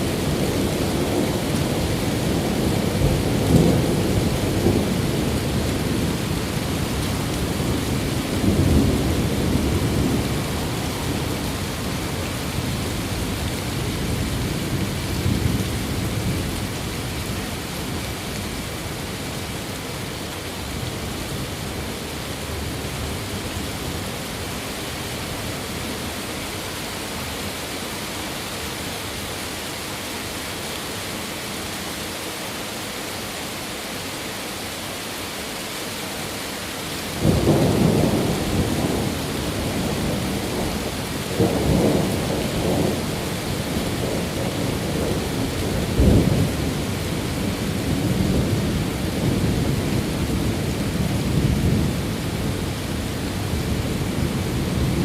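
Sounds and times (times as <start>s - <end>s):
thunder rumbling: 0.0s - 18.2s, 37.2s - 55.0s
rain hissing: 0.0s - 55.0s.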